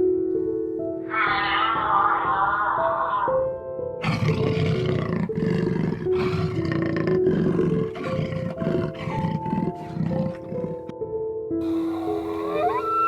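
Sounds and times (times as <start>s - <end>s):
soft background music: 0.0s - 13.0s
lion roaring: 4.0s - 10.9s.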